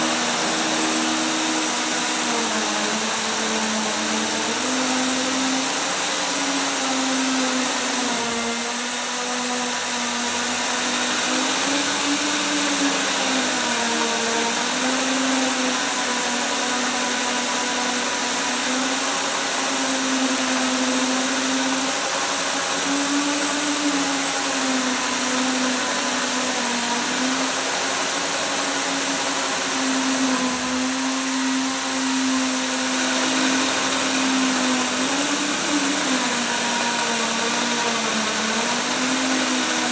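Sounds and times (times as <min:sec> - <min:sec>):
core drill running: 0:00.0 - 0:39.9.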